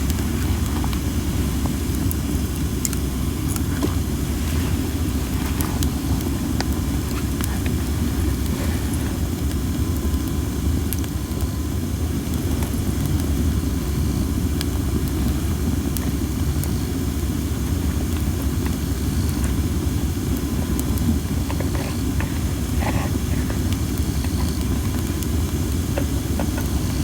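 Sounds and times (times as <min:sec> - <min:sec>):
campfire crackling and popping: 0:00.0 - 0:27.0
hiss from burning wood: 0:00.0 - 0:27.0.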